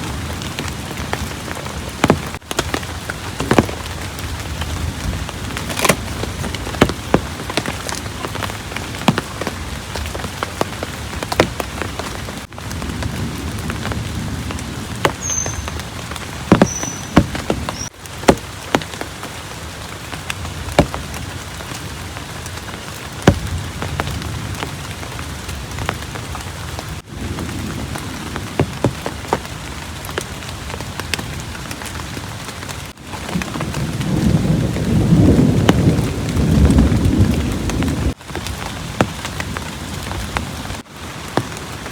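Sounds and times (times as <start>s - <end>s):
heavy rain falling: 0.0s - 41.9s
raindrops striking close by: 0.0s - 41.9s
thunder rumbling: 33.2s - 40.5s.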